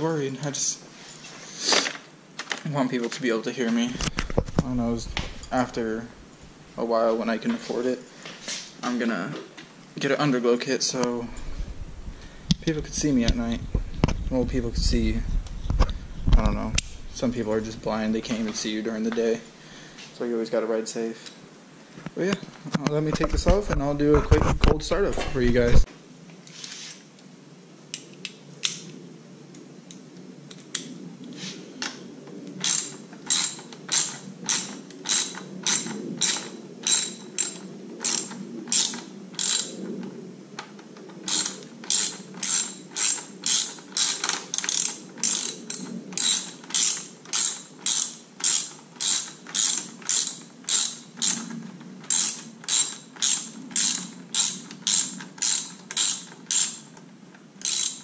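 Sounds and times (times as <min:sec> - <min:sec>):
ratchet wrench clicking: 0:32.6 - 0:39.8, 0:41.3 - 0:57.0, 0:57.6 - 0:58.0.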